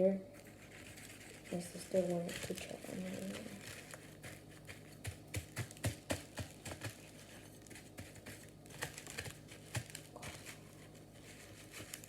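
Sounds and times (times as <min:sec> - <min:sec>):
faint rustling: 0:00.3 - 0:05.1, 0:06.5 - 0:12.0
seeds clicking onto a plate: 0:01.7 - 0:10.6.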